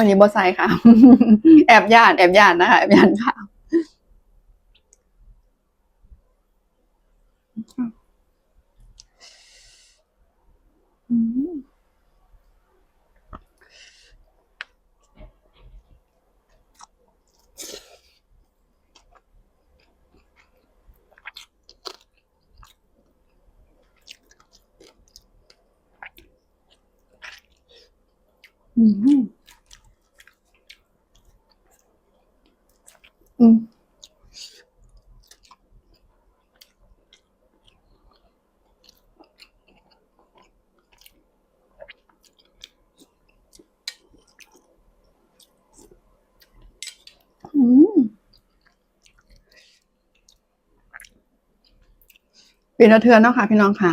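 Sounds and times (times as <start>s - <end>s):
person chewing: 13.2s - 28.8s, 29.4s - 47.5s, 48.2s - 52.7s.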